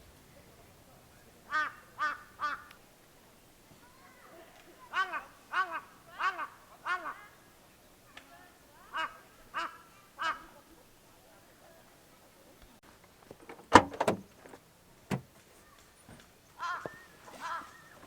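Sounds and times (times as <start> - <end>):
knocks: 13.4 - 14.3, 15.1 - 15.3
crow cawing: 16.6 - 17.6.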